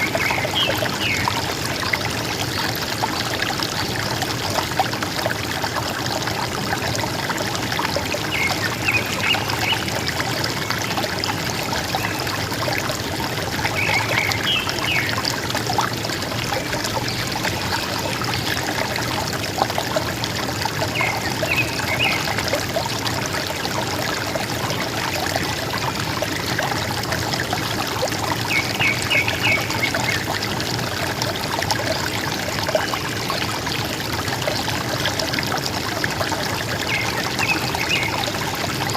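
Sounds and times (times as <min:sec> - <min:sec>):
river water flowing over stones: 0:00.0 - 0:38.9.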